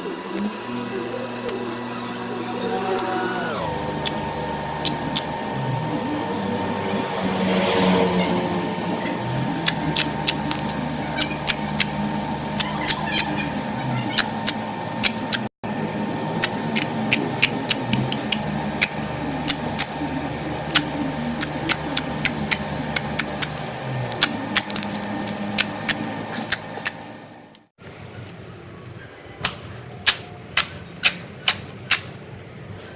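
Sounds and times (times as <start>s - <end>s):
steady low hum: 8.2s - 27.7s.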